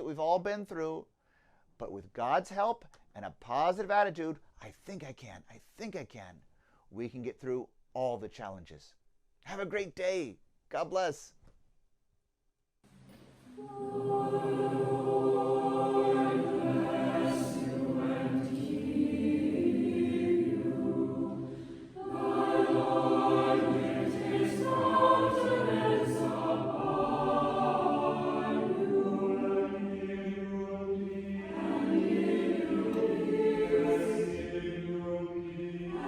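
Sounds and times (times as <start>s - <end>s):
choir singing held notes: 13.1s - 36.0s.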